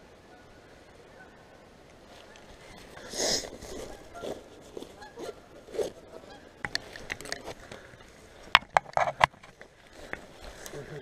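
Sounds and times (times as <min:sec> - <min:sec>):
sharp clicks and rustles: 0:06.6 - 0:10.8.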